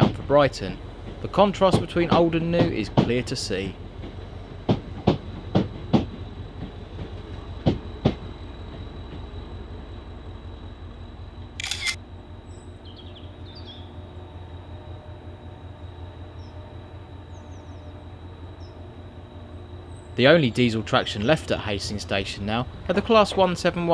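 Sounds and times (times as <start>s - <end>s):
train low running hum: 0.0s - 23.9s
train wheels clicking over rail joint: 11.6s - 12.0s.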